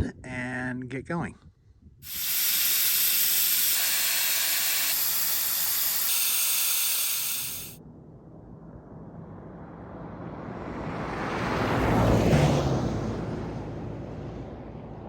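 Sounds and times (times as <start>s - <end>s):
air hissing from tyre valve: 2.0s - 7.8s.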